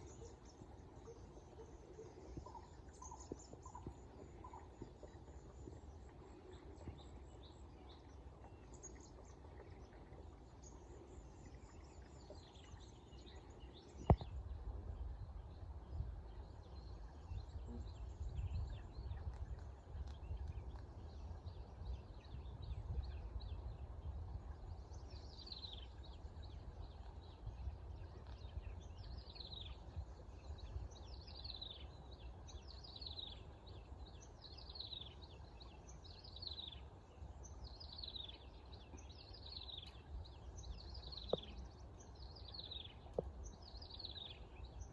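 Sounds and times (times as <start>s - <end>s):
birds chirping: 30.4s - 44.9s.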